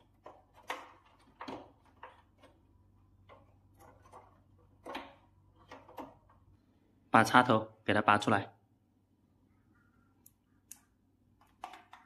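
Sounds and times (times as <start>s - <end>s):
plastic clicks and knocks: 0.0s - 2.6s.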